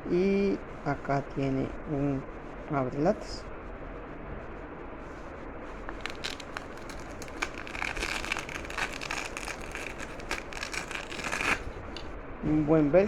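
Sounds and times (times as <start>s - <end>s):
nylon pouch handling clicks: 5.9s - 12.1s
velcro tearing apart: 5.9s - 12.2s.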